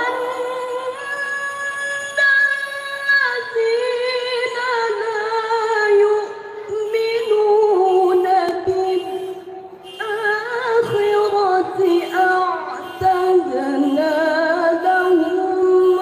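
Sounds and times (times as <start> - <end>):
melodic recitation: 10.0 - 16.0.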